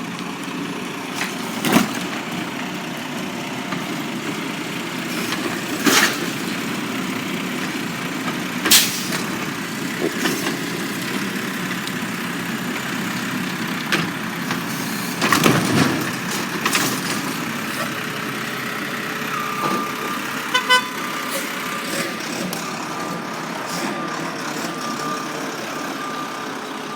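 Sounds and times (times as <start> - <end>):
garbage truck engine running: 0.0 - 26.9
beeping: 19.3 - 21.9, 22.6 - 26.9.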